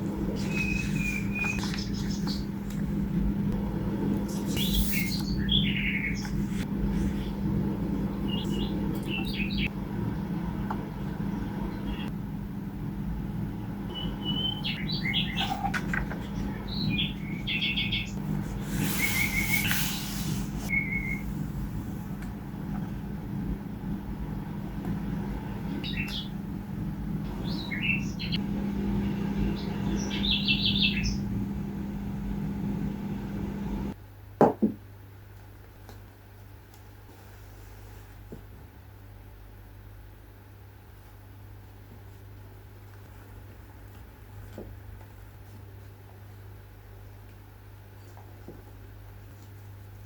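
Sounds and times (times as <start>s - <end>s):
low hum and rumble: 0.0s - 34.0s
small birds chirping: 0.3s - 2.5s, 4.3s - 6.6s, 8.2s - 9.7s, 13.9s - 21.3s, 25.5s - 26.4s, 27.3s - 31.4s.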